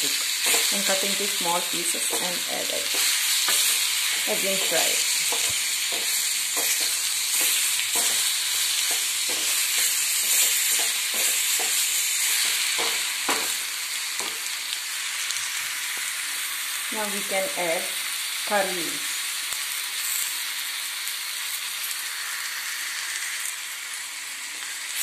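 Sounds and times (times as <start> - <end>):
vegetables sizzling in oil: 0.0 - 25.0
spoon scraping and knocking pan: 0.1 - 14.5.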